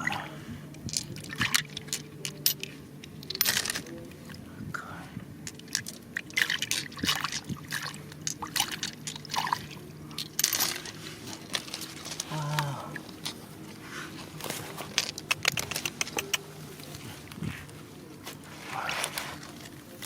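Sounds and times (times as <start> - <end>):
faint low hum: 0.0 - 20.0
water sloshing and splashing: 1.0 - 2.3, 5.5 - 15.6.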